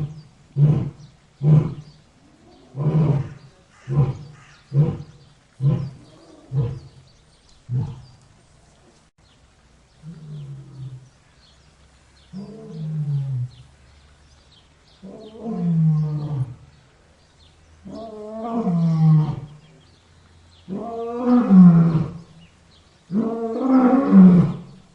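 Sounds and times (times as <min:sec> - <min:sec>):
lion roaring: 0:00.0 - 0:07.0, 0:07.7 - 0:08.2, 0:12.3 - 0:13.6, 0:15.0 - 0:16.7, 0:17.8 - 0:19.6, 0:20.7 - 0:22.3, 0:23.1 - 0:24.8.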